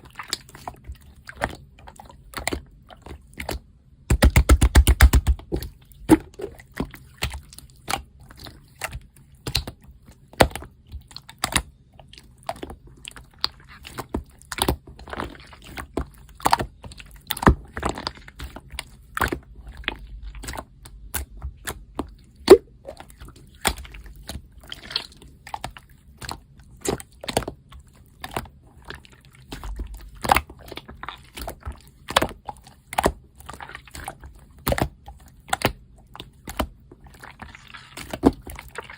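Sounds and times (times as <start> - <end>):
slime squished by hand: 0.0 - 38.9.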